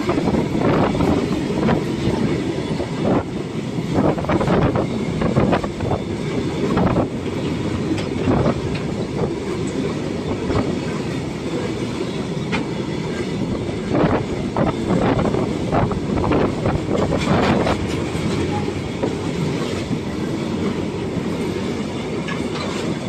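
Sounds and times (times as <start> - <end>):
train wheels rumbling on rails: 0.0 - 23.0
wheels clacking over rail joints: 4.1 - 23.0.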